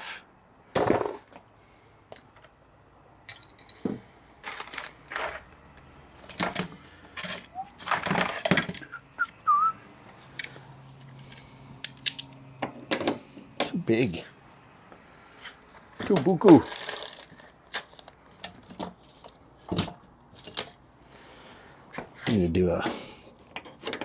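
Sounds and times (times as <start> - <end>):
metal tools clinking: 3.3 - 5.4, 6.2 - 9.0, 11.3 - 12.4, 16.0 - 18.8.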